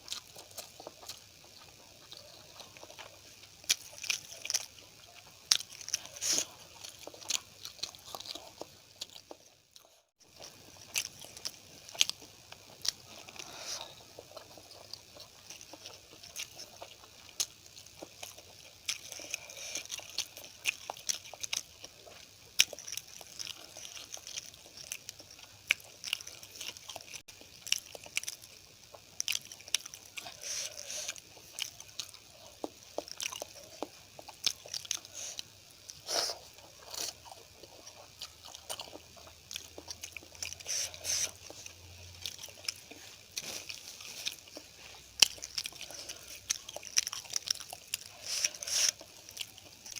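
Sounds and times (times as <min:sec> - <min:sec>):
chewing and biting: 0:00.0 - 0:49.9.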